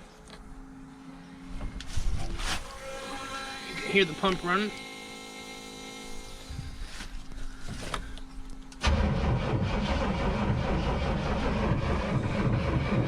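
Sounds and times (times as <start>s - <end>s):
electric fuel pump humming: 2.6s - 13.0s
engine cranking: 8.8s - 13.0s.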